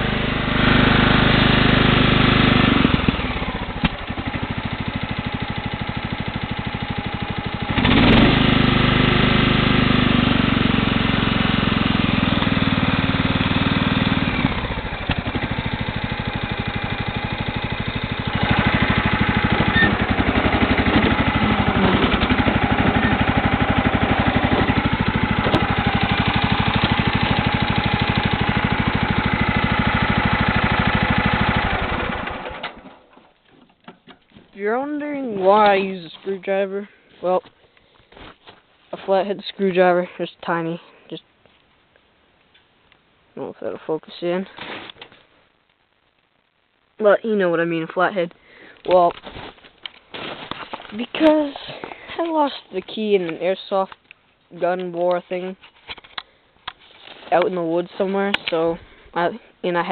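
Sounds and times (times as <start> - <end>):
lawn tractor engine running: 0.0 - 33.2.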